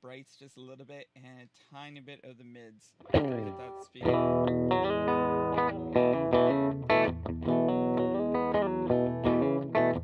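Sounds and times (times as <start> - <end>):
electric guitar notes and chords: 3.0 - 10.0.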